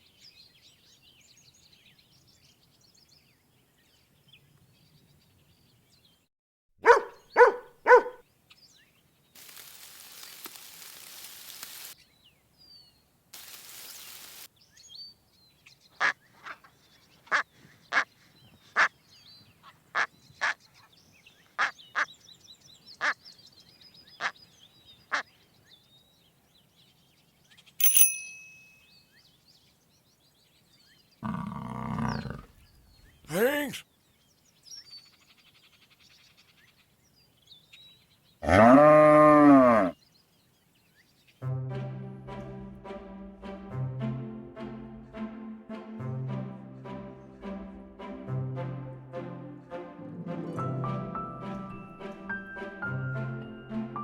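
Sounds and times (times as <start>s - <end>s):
hiss: 9.4s - 12.0s, 13.4s - 14.5s
duck quacking: 17.3s - 18.1s
bright ding: 27.8s - 28.9s.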